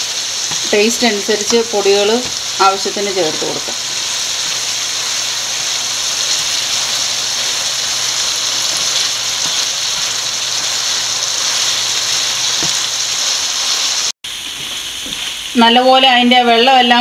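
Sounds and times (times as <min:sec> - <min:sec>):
food sizzling in a frying pan: 0:00.0 - 0:17.0
wooden spatula stirring: 0:08.4 - 0:13.8.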